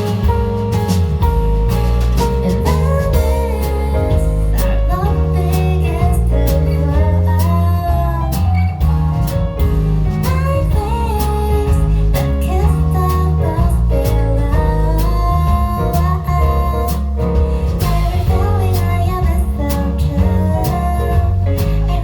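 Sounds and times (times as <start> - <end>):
live band with guitar bass drums: 0.0 - 22.0
woman singing: 2.6 - 22.0.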